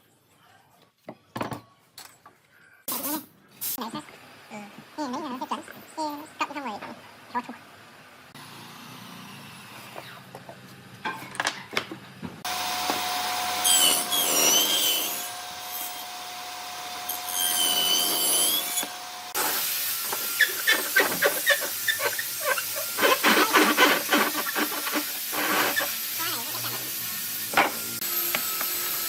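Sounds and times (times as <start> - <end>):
woodworking power tool whining: 8.3 - 10.5, 11.4 - 29.0.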